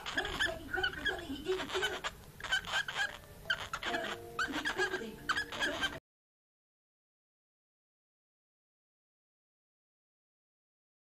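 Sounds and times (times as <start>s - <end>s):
cockatiels chirping: 0.0s - 6.0s.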